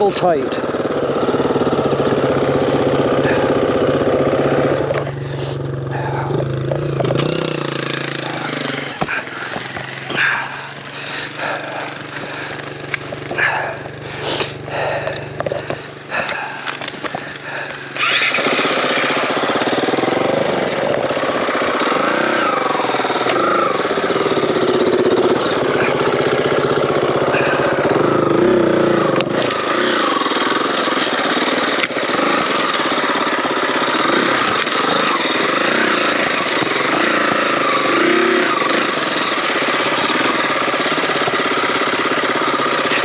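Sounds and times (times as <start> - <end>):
dirt bike engine: 0.0 - 43.0
clicks and crackles: 14.4 - 17.5.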